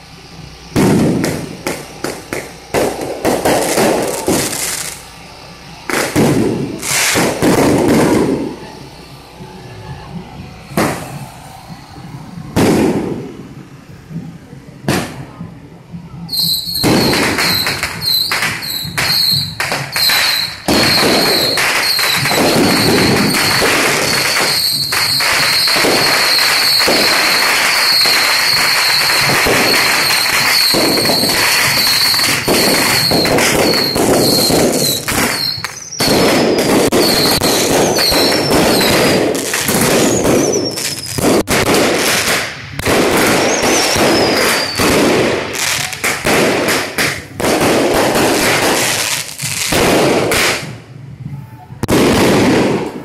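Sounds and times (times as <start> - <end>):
high steady whistle: 0.0 - 12.6, 15.2 - 41.2, 43.2 - 46.0
firecrackers crackling: 0.0 - 53.0
whistles falling in pitch: 16.2 - 39.0, 40.0 - 41.2, 43.3 - 44.9.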